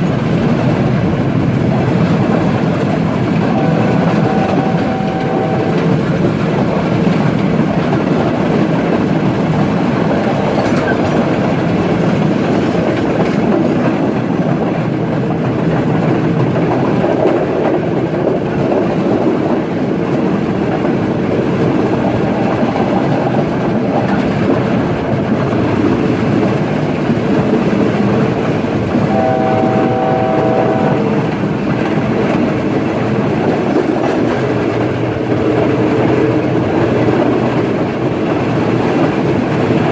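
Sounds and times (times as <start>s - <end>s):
train wheels rumbling on rails: 0.0s - 39.9s
train horn: 3.1s - 6.2s, 21.6s - 23.8s, 28.8s - 31.4s.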